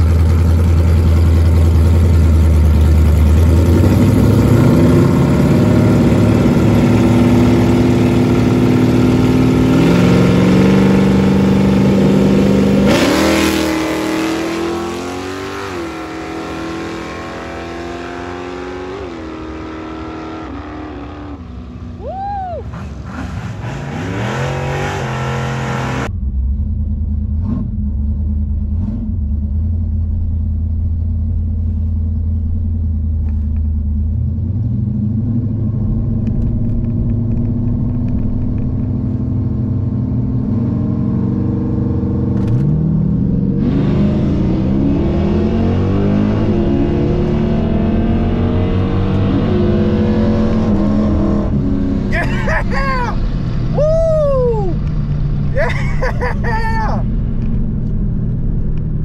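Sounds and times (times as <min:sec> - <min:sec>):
drag racing cars accelerating: 0:00.0 - 0:22.0, 0:22.6 - 0:26.1, 0:34.4 - 0:53.8
car engine at low revs: 0:00.0 - 0:59.0.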